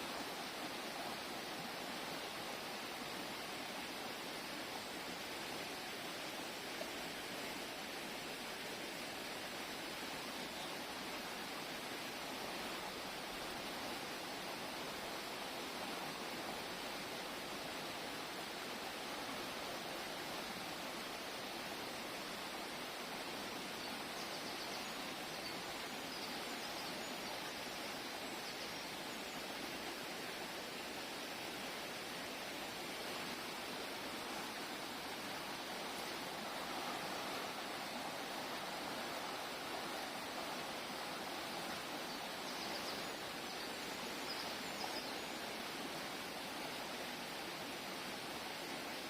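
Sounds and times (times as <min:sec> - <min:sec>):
stream flowing over rocks: 0:00.0 - 0:49.0
water rushing over rocks: 0:28.9 - 0:49.0.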